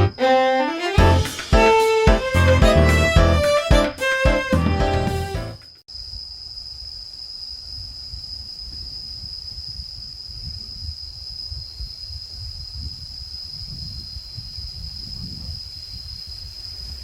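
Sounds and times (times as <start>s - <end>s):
crickets chirring: 0.0s - 2.4s, 5.6s - 17.0s
wind rumble on microphone: 7.8s - 17.0s.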